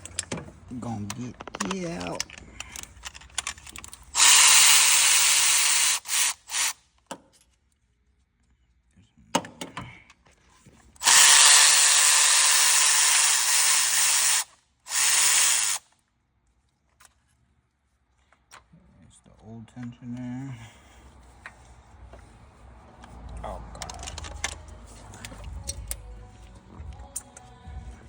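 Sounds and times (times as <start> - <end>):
handheld power tool whirring: 4.1 - 6.8, 11.0 - 15.9.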